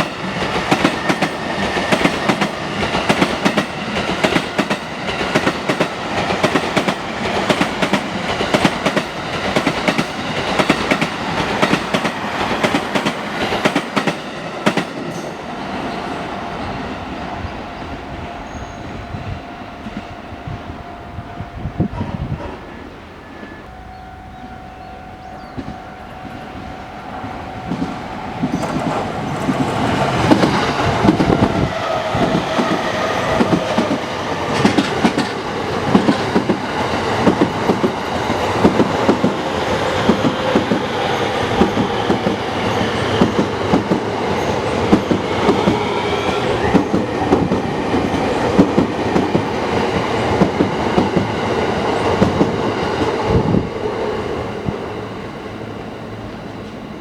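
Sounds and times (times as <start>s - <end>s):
train wheels clacking over joints: 0.0s - 15.4s, 27.6s - 53.2s.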